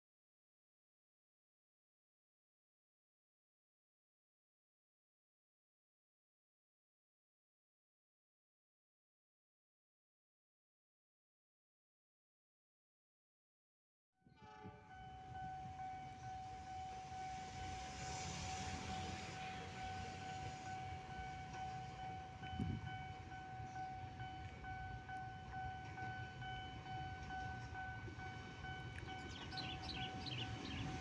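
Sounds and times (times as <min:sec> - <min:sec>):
locomotive engine rumble: 0:14.8 - 0:31.0.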